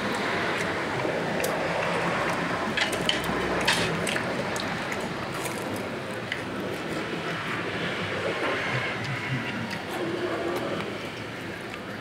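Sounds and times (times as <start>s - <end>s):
wet squishy chewing: 0.0s - 7.7s.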